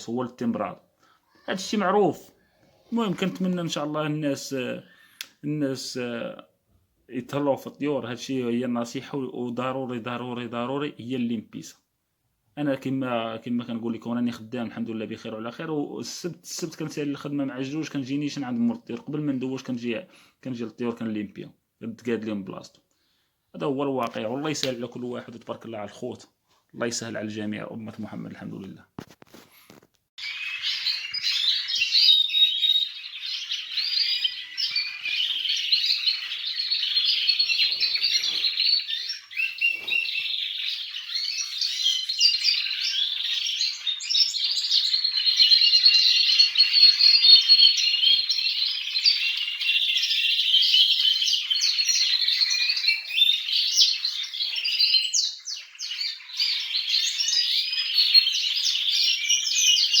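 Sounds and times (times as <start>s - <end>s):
canaries singing and chirping: 0.0s - 4.8s, 30.2s - 60.0s.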